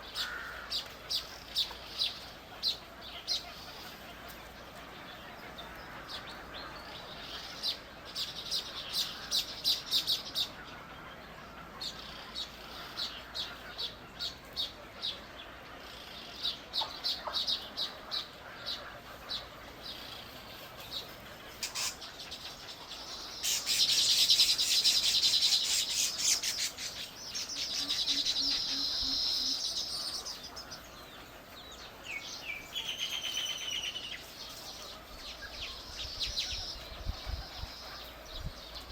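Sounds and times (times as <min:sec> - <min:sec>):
small birds chirping: 0:00.0 - 0:38.9
bird trill: 0:21.5 - 0:38.9.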